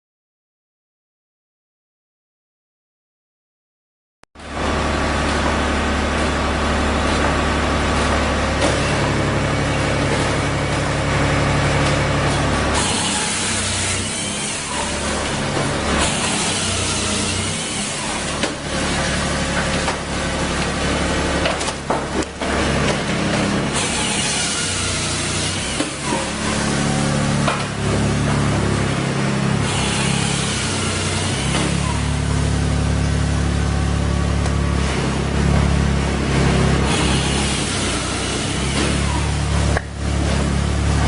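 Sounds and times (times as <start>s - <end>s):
machine mechanical hum: 4.4s - 41.0s
wood cutting hissing rasp: 12.6s - 19.9s, 23.5s - 27.5s, 29.6s - 32.2s, 36.8s - 39.5s.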